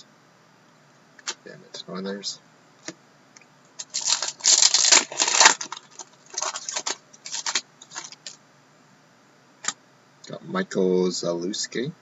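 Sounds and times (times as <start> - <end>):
cards and wrapper rustling: 3.8 - 8.4.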